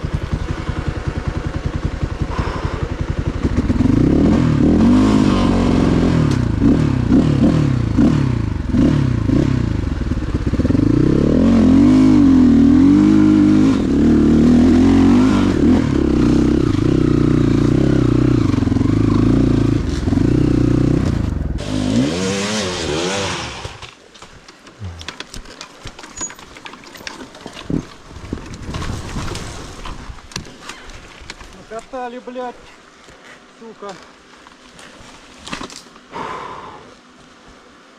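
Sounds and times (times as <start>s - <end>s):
motorcycle engine revving: 0.0s - 23.9s, 24.8s - 25.4s
clicks and rattles: 24.2s - 31.9s.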